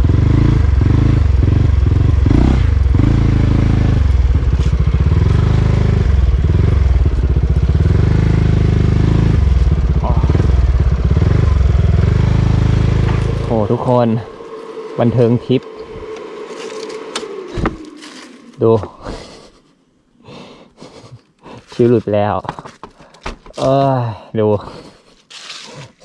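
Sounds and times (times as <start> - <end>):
scooter engine running: 0.0 - 18.5.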